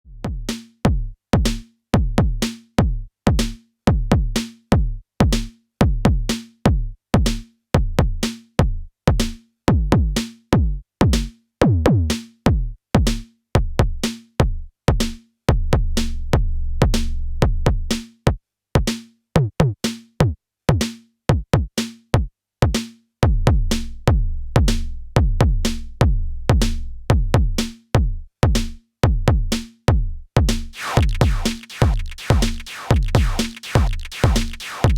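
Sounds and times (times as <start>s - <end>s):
synthesized drum hits: 30.8s - 34.9s.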